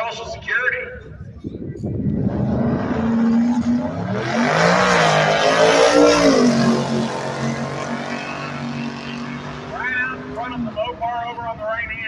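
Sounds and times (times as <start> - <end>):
drag-race cars accelerating: 2.0 - 11.7.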